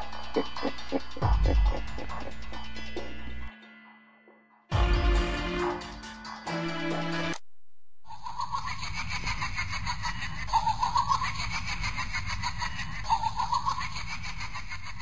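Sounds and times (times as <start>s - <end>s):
choppy laughter: 0.0s - 3.2s, 8.1s - 15.0s.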